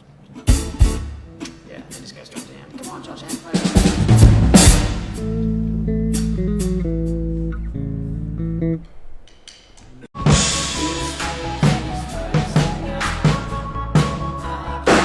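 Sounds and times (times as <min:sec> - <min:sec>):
full band playing: 0:00.0 - 0:07.5, 0:10.2 - 0:15.0
low bass: 0:04.1 - 0:08.8
sustained guitar chords: 0:04.5 - 0:08.8
crashing cymbals: 0:10.2 - 0:12.3.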